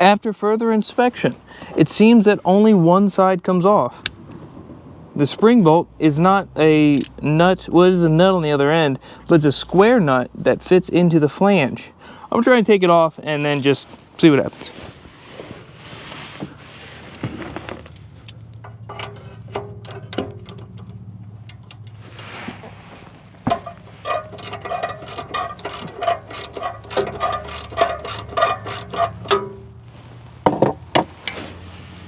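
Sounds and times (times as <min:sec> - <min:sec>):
hand ratchet clicking: 0:23.5 - 0:29.6.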